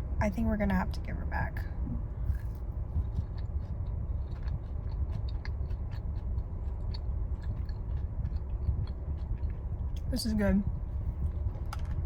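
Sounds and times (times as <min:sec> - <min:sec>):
low steady hum: 0:00.0 - 0:12.0
person chewing: 0:02.2 - 0:10.1.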